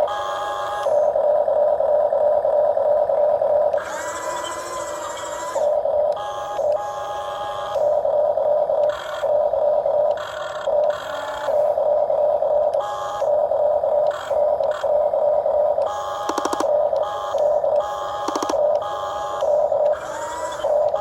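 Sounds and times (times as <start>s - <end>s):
small electric motors whining: 0.0s - 21.0s.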